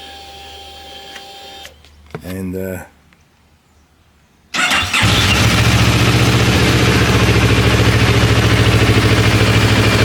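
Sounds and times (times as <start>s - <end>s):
engine cranking on starter: 4.6s - 7.4s
motorcycle engine idling: 4.6s - 10.0s.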